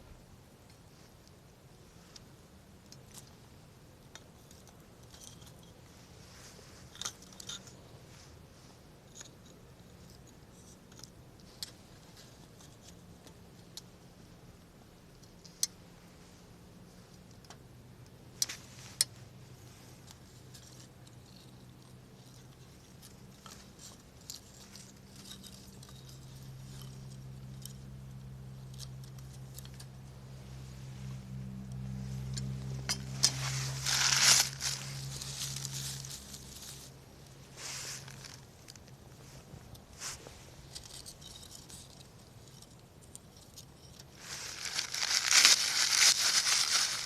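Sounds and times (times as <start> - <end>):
low steady hum: 0.0 - 47.0
campfire crackling: 44.1 - 47.0.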